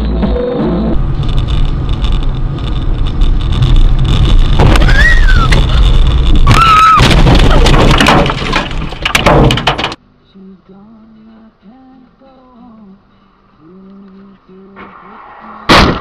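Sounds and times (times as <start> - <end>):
car road and engine rumble: 0.0 - 16.0
rapid clatter: 1.1 - 10.0
short high squeals: 4.7 - 7.1.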